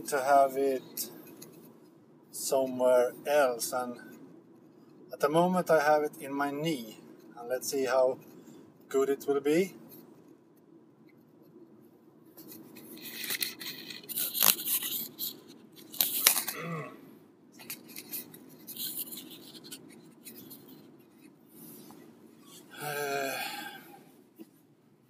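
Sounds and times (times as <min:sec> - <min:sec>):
headset microphone rubbing on clothing: 0:11.0 - 0:16.4, 0:17.6 - 0:22.7.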